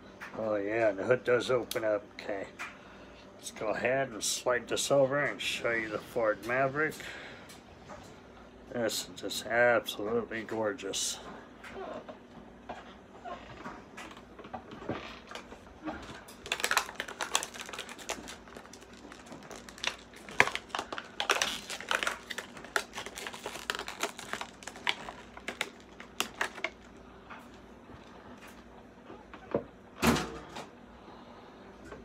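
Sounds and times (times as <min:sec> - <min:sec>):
toy packaging crinkling: 0:15.3 - 0:27.0
packaging clicks: 0:16.3 - 0:27.0.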